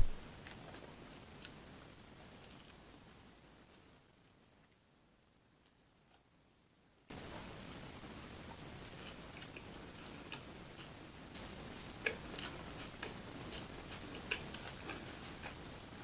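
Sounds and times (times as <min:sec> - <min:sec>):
person chewing food: 0:08.9 - 0:15.6.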